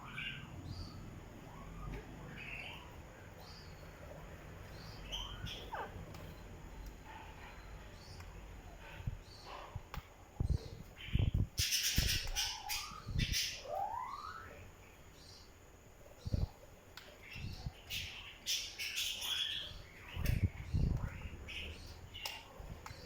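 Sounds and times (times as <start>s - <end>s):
parrot squawking and chirping: 4.9s - 6.0s, 11.6s - 14.5s.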